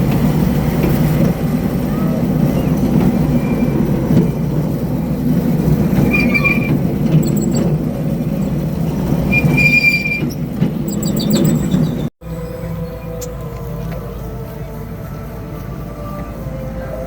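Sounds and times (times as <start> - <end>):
ride train rumbling: 0.0 - 17.0
short high squeals: 1.8 - 4.5, 5.8 - 13.4.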